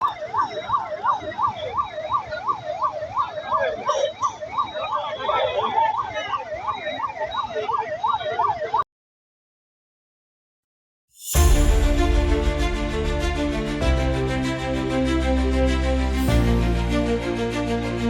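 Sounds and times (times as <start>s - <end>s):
road noise: 0.0s - 8.6s
emergency siren wailing: 0.0s - 8.9s.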